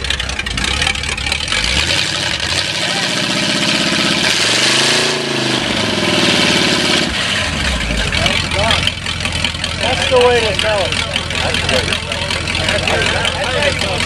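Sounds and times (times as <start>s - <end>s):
engine idling and revving: 0.0s - 14.0s.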